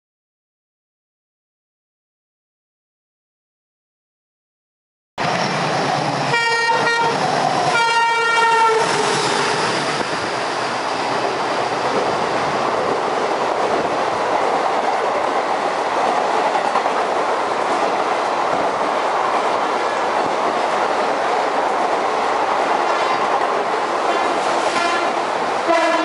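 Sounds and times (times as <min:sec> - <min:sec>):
train coaches rumbling and clattering: 0:05.2 - 0:26.0
locomotive horn blasts: 0:06.3 - 0:08.9, 0:24.1 - 0:26.0.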